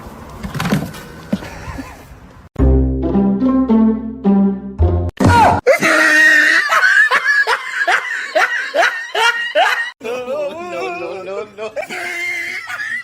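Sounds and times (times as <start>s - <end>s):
background music: 2.6s - 5.1s
person laughing hard: 5.6s - 13.0s.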